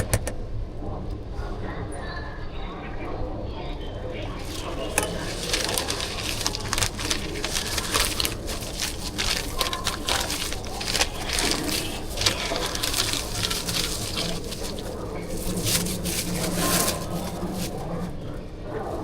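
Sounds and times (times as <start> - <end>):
plastic rustling and crackling: 4.2 - 18.4.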